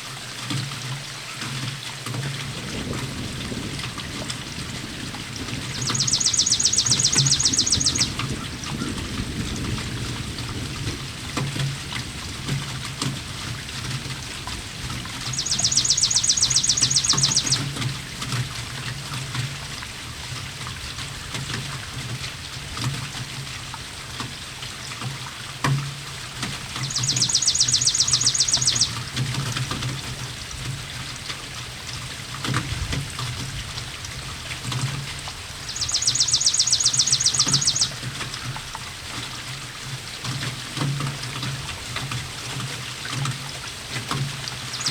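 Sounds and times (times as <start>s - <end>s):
rain with water trickling: 0.0s - 44.9s
songbird trilling: 5.7s - 8.9s, 15.1s - 18.1s, 26.6s - 29.4s, 35.6s - 38.8s, 44.6s - 44.9s.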